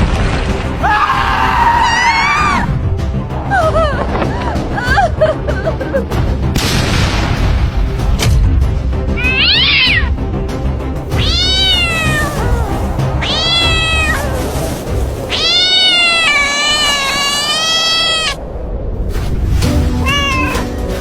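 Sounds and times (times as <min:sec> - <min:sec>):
background music: 0:00.0 - 0:17.8, 0:19.0 - 0:21.0
cat meowing: 0:09.2 - 0:10.1, 0:11.1 - 0:14.7, 0:15.3 - 0:18.4, 0:19.9 - 0:21.0.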